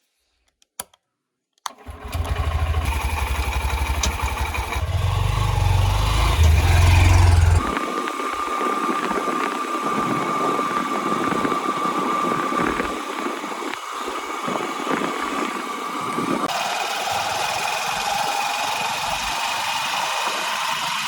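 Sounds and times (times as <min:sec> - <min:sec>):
diesel engine running: 0:01.8 - 0:21.0
high whine: 0:03.6 - 0:15.0.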